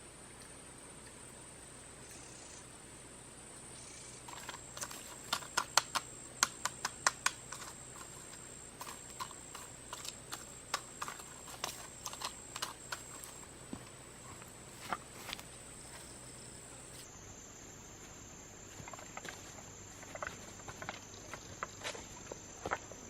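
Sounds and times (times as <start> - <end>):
high-pitched insect drone: 2.0 - 2.7
sharp clicks and taps: 4.3 - 13.4.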